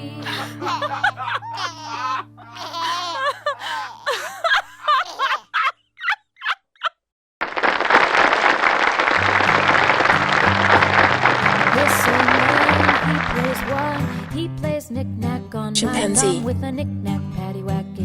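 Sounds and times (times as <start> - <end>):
children giggling and laughing: 0.2 - 7.0
applause: 7.4 - 14.4.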